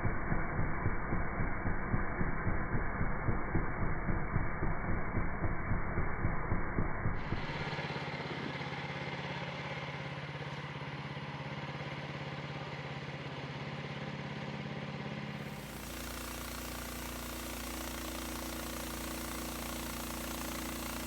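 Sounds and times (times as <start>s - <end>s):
sawmill engine pulsing: 0.0s - 8.8s, 15.4s - 21.0s.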